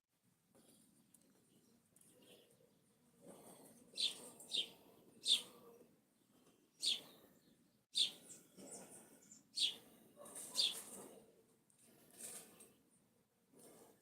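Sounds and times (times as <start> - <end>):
bird chirping: 3.9 - 9.9, 10.5 - 10.9.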